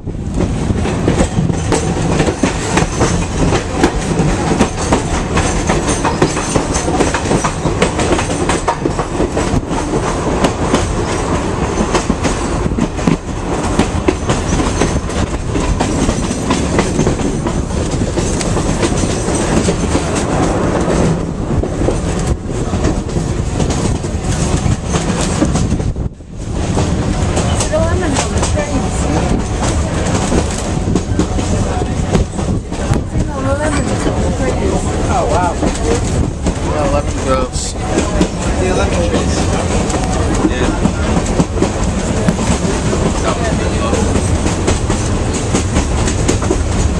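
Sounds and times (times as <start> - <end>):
train running: 0.0 - 46.9
wheels clattering over rails: 0.0 - 46.9.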